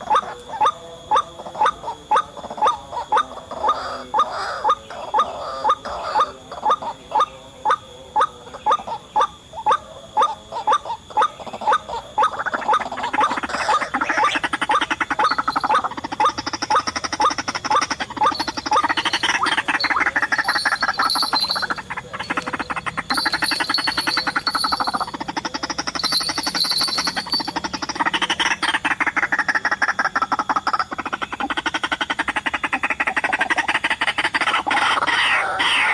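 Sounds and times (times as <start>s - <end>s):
waterhen croaking calls: 0.0s - 35.9s
higher bird chatter: 10.5s - 35.9s.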